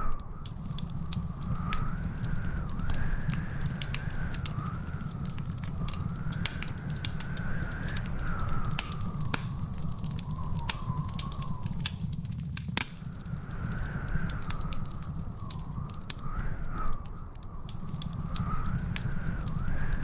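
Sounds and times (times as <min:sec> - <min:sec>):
wood fire crackling: 0:00.0 - 0:20.0
faint wavering whistle: 0:10.2 - 0:11.8.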